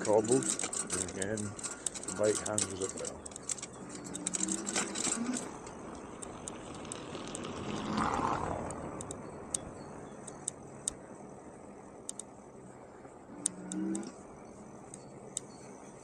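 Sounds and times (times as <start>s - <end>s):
clicks and rattles over cobbles: 0.0s - 8.1s
bike road noise: 0.0s - 16.0s.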